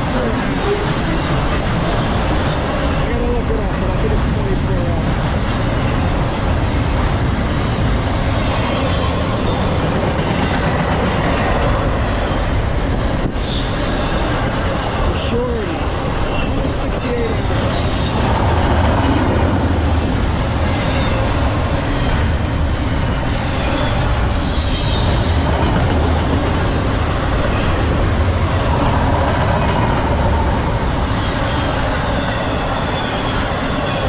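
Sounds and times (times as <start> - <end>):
freight train wheels rumbling: 0.0 - 34.0.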